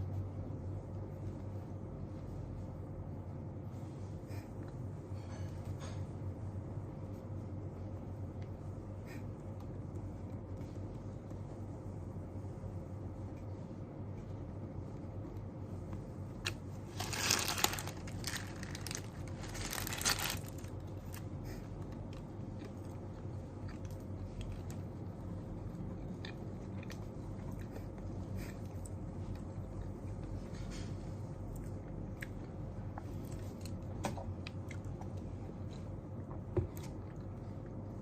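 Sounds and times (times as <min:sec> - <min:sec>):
low room noise: 0:00.0 - 0:38.0
crinkling rustling handling noise: 0:15.8 - 0:22.8.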